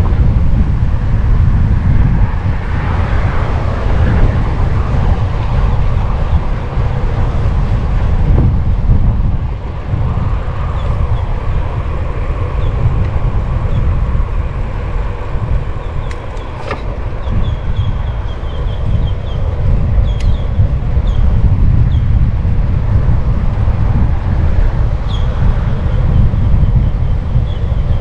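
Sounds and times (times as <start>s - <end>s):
road noise from bicycle: 0.0s - 28.0s
wind rushing: 0.0s - 28.0s
car traffic: 9.7s - 19.7s
sharp clicks: 16.0s - 17.0s.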